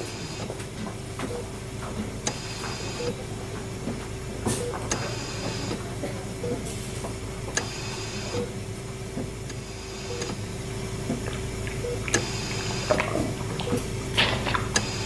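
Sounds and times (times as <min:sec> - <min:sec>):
low drone and hum: 0:00.0 - 0:15.0
scattered clicks: 0:09.5 - 0:10.4, 0:11.1 - 0:15.0
wet dripping squelching: 0:10.2 - 0:14.8.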